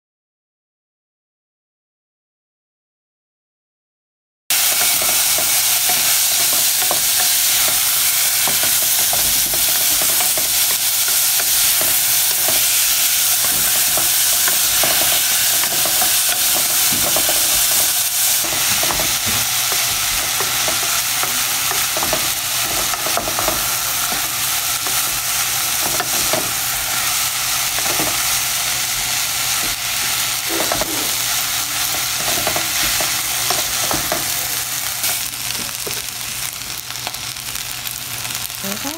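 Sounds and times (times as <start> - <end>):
spatula scraping a pan: 4.5 - 34.4
food sizzling in oil: 4.5 - 38.9.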